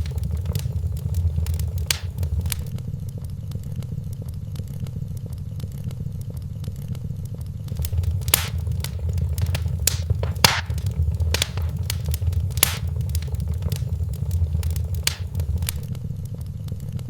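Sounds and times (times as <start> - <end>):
fire low rumble: 0.0 - 2.7, 7.7 - 15.9
sharp pops of fire: 0.0 - 2.7, 7.7 - 15.9
wood fire crackling: 0.0 - 2.7, 7.7 - 15.9.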